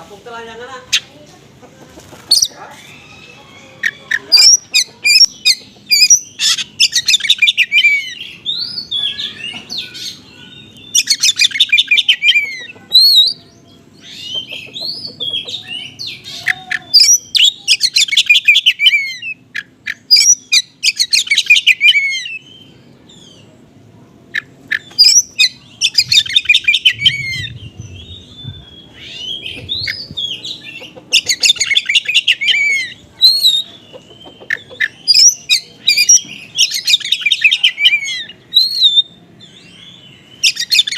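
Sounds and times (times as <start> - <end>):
bird fast high chattering: 10.9 - 22.4, 24.3 - 39.0.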